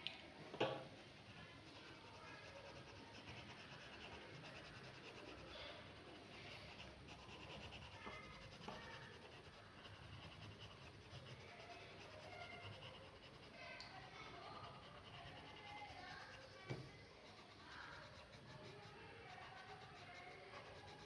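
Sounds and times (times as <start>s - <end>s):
pen scratching on paper: 1.6s - 13.6s, 14.5s - 21.0s.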